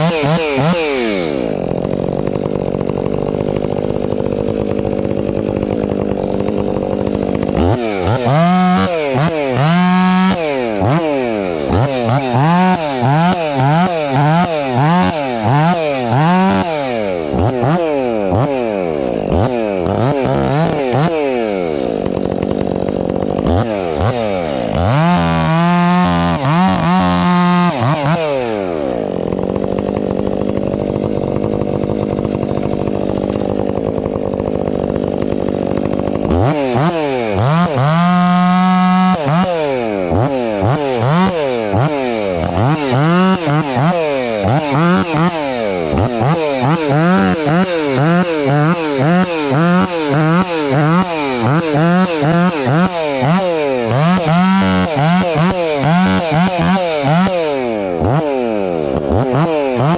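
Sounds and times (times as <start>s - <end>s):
chainsaw revving: 0.0s - 59.9s.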